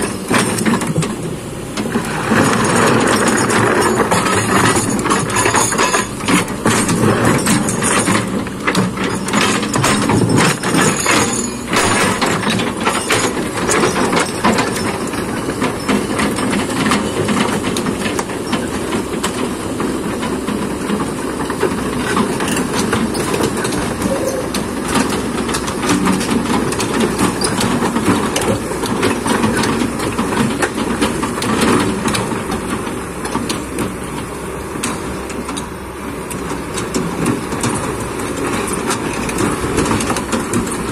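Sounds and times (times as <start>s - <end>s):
diesel engine under load: 0.0s - 40.9s
metal and stone clanking: 1.8s - 19.4s, 21.4s - 32.3s.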